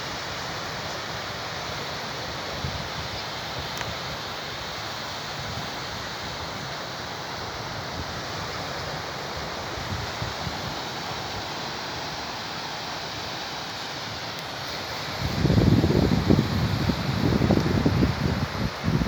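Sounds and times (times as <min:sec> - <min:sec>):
sea surf washing on shore: 0:00.0 - 0:19.0
wind buffeting microphone: 0:15.1 - 0:19.0.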